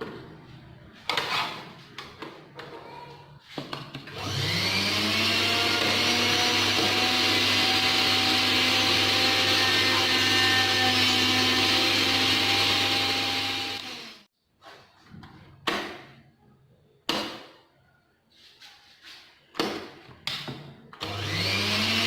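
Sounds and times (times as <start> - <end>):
mixer grinder motor whine: 4.1 - 14.3, 21.0 - 22.0.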